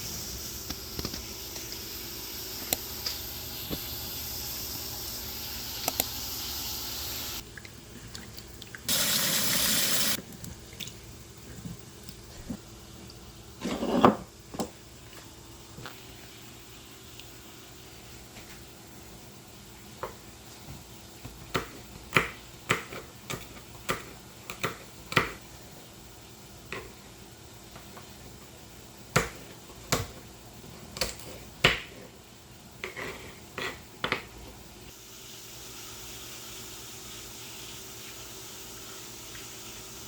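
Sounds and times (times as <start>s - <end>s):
steady hiss: 0.0s - 7.4s, 8.9s - 10.2s.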